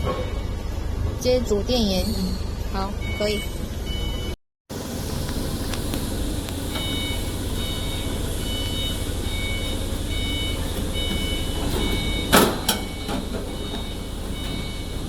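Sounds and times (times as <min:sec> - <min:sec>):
low machinery hum: 0:00.0 - 0:15.0
high-pitched electronic beeps: 0:02.0 - 0:04.4.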